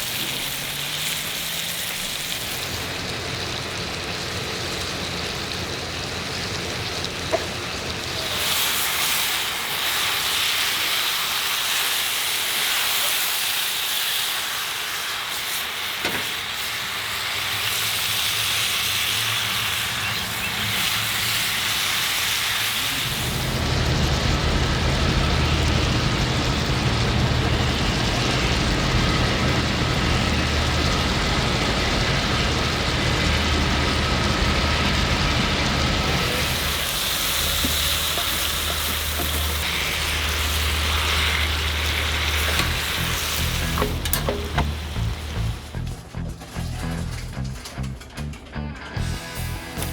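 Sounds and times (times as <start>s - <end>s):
food sizzling in a skillet: 0.0s - 45.8s
low steady rumble: 23.0s - 48.4s.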